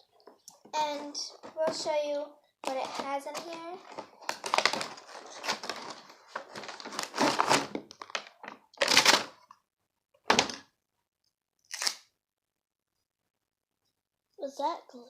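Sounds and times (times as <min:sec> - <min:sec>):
plastic packaging rustling: 0:02.6 - 0:09.5
items knocking when set down: 0:10.2 - 0:10.7.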